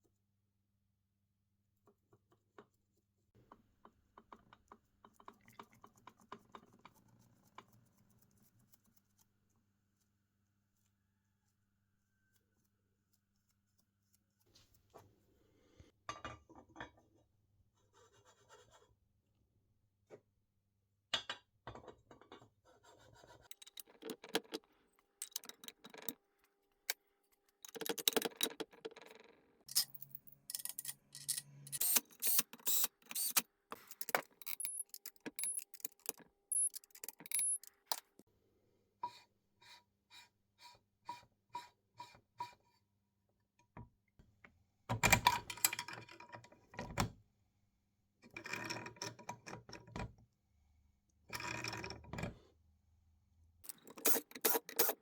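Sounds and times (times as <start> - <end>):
metal tools clinking and scraping: 25.2 - 26.2, 29.7 - 38.1.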